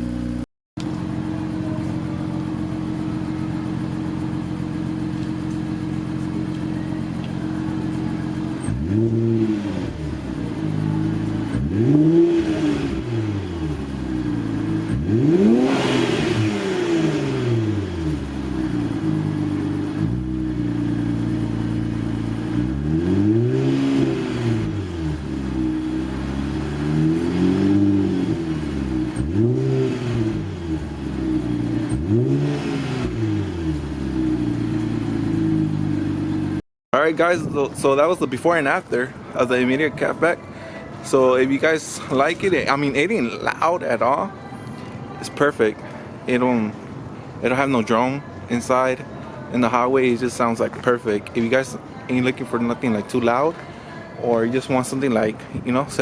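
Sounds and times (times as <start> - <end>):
car engine idling and revving: 0.0 - 36.6.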